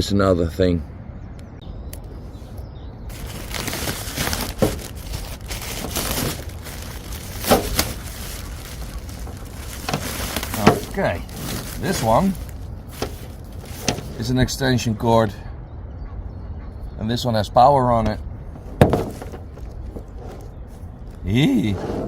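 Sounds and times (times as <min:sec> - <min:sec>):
rustling and crinkling: 0:02.3 - 0:14.6, 0:18.0 - 0:22.0.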